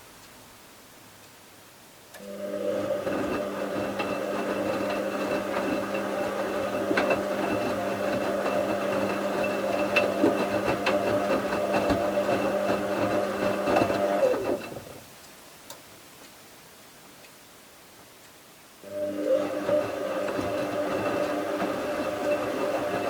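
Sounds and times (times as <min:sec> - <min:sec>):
washing machine motor hum: 0:02.2 - 0:15.0, 0:18.8 - 0:23.0.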